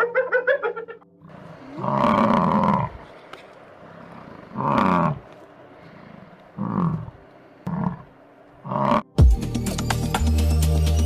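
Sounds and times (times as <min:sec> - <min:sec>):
cow mooing: 0:01.2 - 0:09.1.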